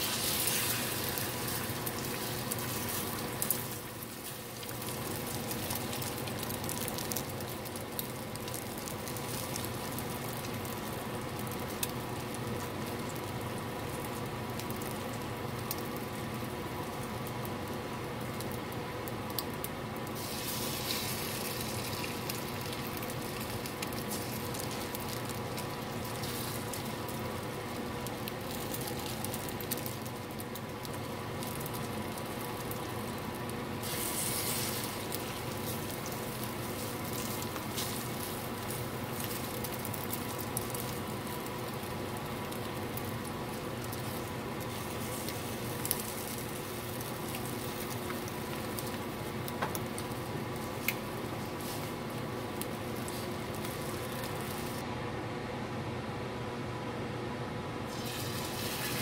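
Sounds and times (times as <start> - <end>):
french toast sizzling in a pan: 0.0 - 18.5, 20.1 - 54.8, 57.9 - 59.0.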